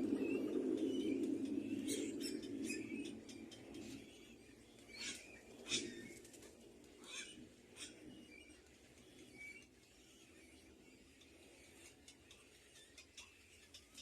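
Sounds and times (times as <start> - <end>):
wing flutters: 0.0 - 10.0
birds chirping: 0.0 - 14.0.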